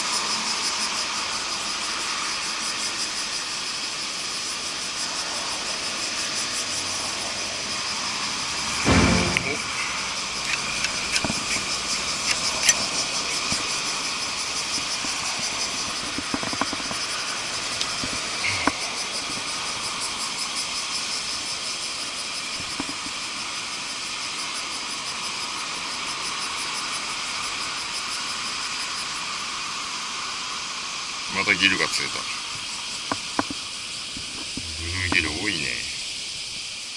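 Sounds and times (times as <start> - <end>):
insects chorus pulsing: 0.0 - 36.9
short clicks and knocks: 8.9 - 9.7.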